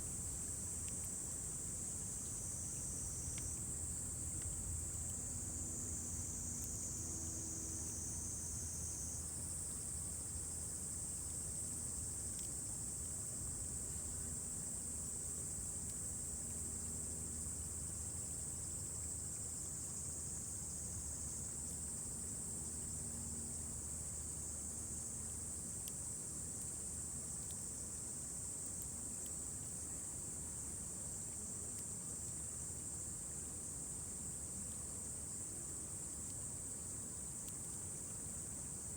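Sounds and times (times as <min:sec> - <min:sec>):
crickets trilling: 0:00.0 - 0:38.9
faint clicks: 0:03.3 - 0:03.6.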